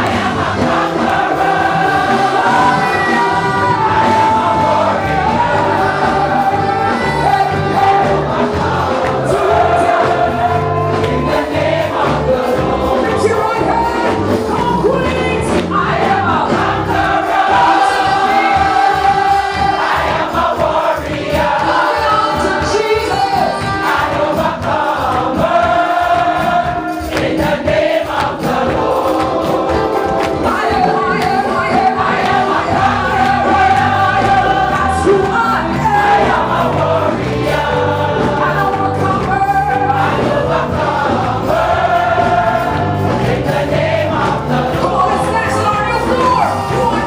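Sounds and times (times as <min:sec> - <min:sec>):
gospel choir singing: 0:00.0 - 0:47.0.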